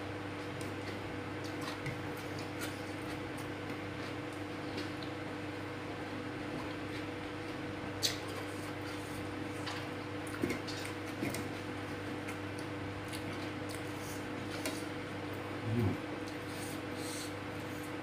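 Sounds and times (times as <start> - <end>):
electrical hum: 0.0 - 18.0
person chewing soft food: 0.4 - 18.0
short low vocal sound: 15.5 - 16.2.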